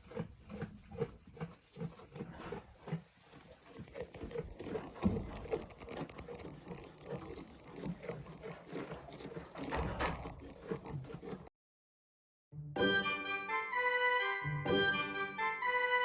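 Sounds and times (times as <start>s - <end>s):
rustling: 1.3s - 11.5s.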